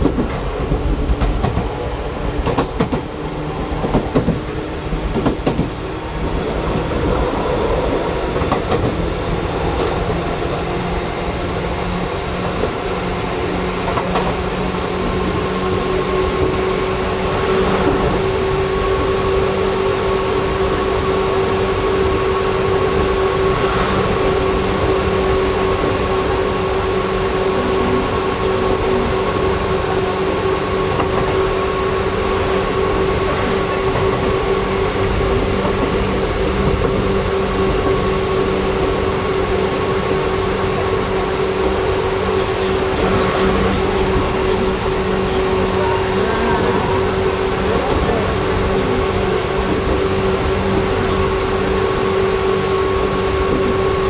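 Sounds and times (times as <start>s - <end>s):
train rumble inside car: 0.0s - 54.0s
high whine: 21.8s - 28.4s.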